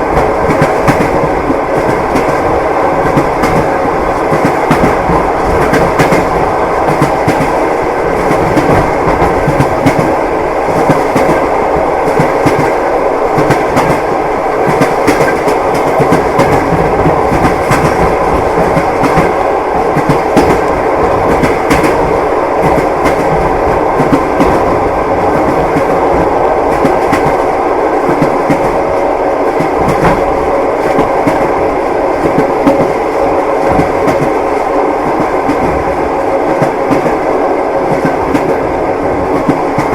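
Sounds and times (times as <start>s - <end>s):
train rumble: 0.0s - 39.9s
train wheels clacking on rails: 0.0s - 39.9s.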